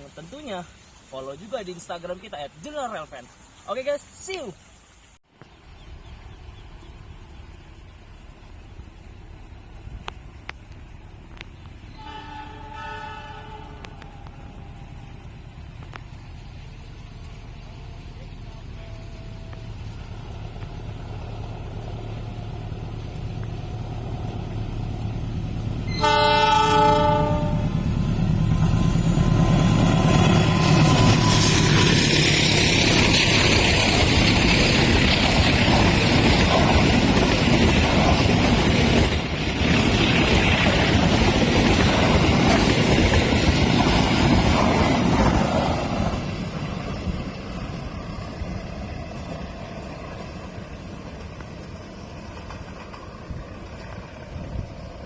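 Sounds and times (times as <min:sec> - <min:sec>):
train engine rumble: 0:05.3 - 0:55.0
train wheel noise: 0:05.9 - 0:55.0
locomotive horn blast: 0:11.9 - 0:14.9, 0:25.8 - 0:28.1.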